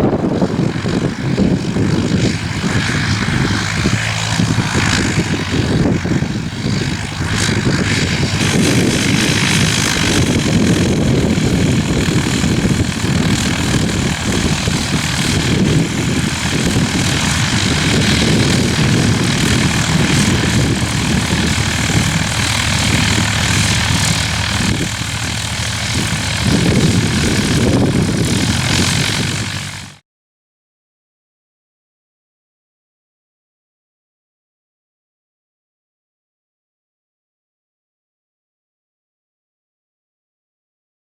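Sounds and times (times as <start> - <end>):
gusting wind rumble: 0.0 - 30.0
light aircraft engine and propeller: 0.0 - 30.0.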